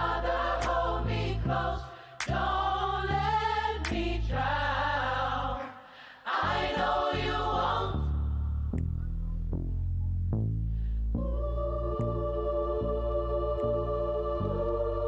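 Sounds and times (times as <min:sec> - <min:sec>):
gospel choir singing: 0:00.0 - 0:08.3, 0:11.2 - 0:15.0
deep sustained bass notes: 0:06.7 - 0:15.0.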